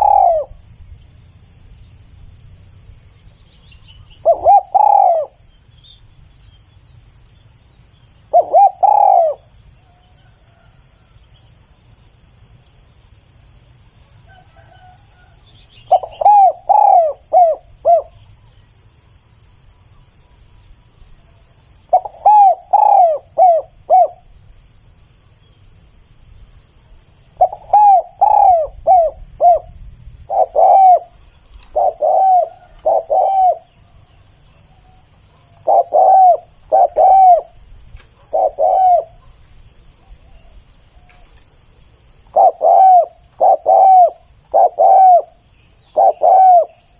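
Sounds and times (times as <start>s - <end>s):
dove cooing: 0.0s - 0.6s, 4.2s - 5.4s, 8.3s - 9.5s, 14.3s - 18.2s, 21.9s - 24.3s, 27.4s - 33.9s, 34.8s - 39.4s, 42.3s - 46.9s
faint insect trill: 0.0s - 46.9s.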